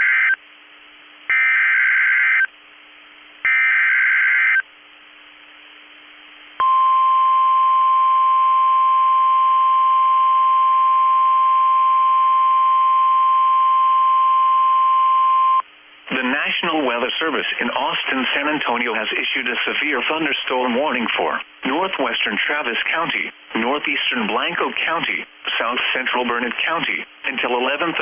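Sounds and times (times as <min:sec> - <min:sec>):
steady alarm tone: 0:01.3 - 0:02.5, 0:03.5 - 0:04.6.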